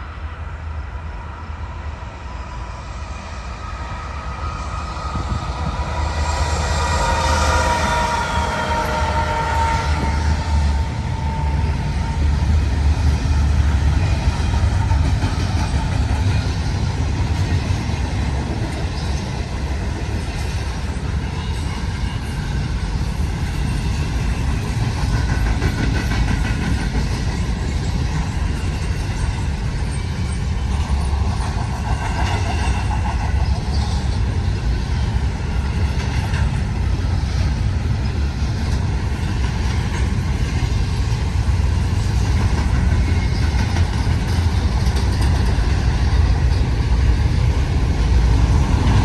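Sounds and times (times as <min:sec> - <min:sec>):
freight train wheels rumbling on rail: 0:00.0 - 0:49.0
train horn: 0:03.5 - 0:13.4.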